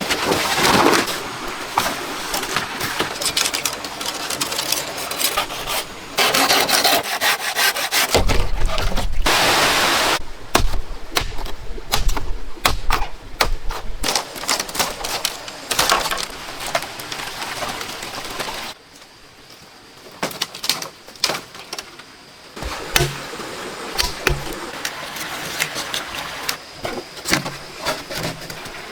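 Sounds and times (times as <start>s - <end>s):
hand sawing wood: 4.2s - 9.0s.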